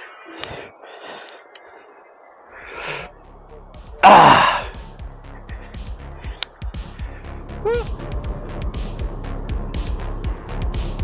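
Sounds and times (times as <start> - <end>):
person breathing out: 0.0 - 1.7, 2.5 - 3.1
person sighing: 2.6 - 3.1, 4.0 - 4.8, 7.6 - 7.9.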